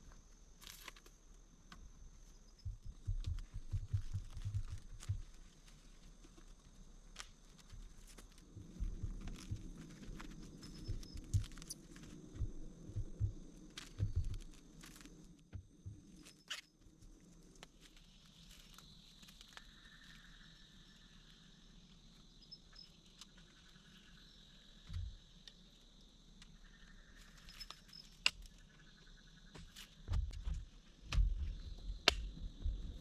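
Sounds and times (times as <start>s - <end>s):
high insect drone: 0.0s - 33.0s
insect trilling: 7.5s - 15.3s, 16.0s - 29.5s.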